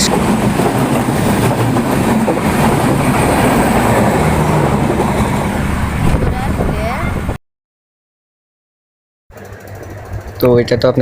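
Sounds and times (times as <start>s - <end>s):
train wheels on rails: 0.0s - 7.3s.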